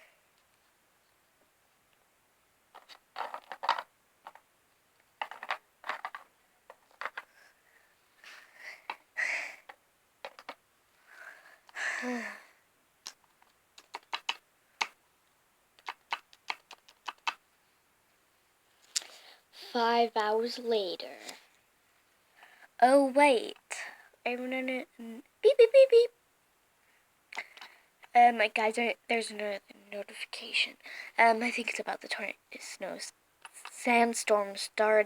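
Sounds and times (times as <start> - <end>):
plastic toys clicking and tapping: 2.8 - 4.5, 5.2 - 7.4, 9.6 - 10.6, 13.0 - 15.0, 15.8 - 17.4.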